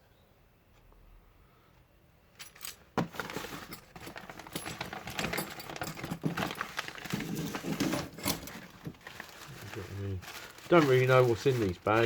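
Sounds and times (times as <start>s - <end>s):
small metal parts clinking: 2.4s - 9.3s
plastic bags rustling: 2.4s - 12.0s.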